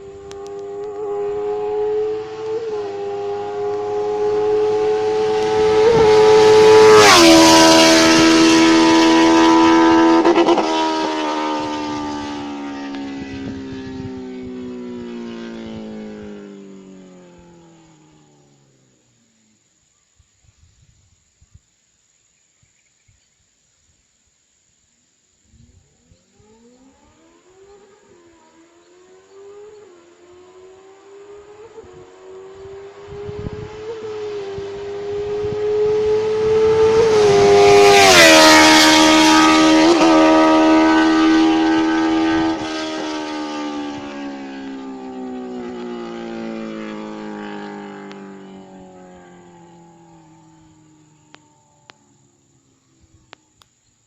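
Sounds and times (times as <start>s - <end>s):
motorcycle engine revving high: 0.0s - 19.3s, 25.8s - 53.2s.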